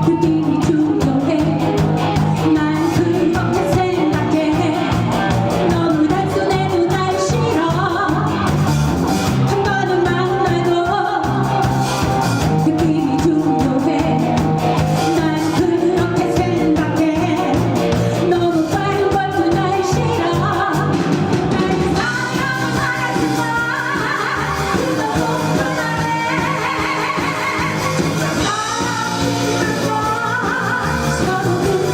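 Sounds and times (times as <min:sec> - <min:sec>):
person singing: 0:00.0 - 0:08.7, 0:09.4 - 0:31.9
live pop-rock band: 0:00.0 - 0:31.9.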